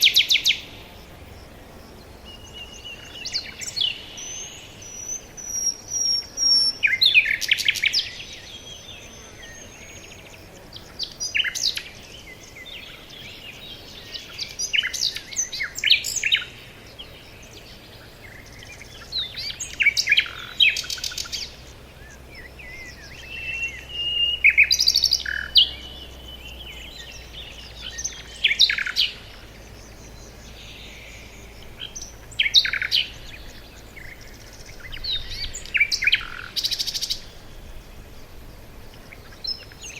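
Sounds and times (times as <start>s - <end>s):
songbirds chirping and trilling: 0.0s - 39.9s
bird whistle: 22.7s - 25.6s.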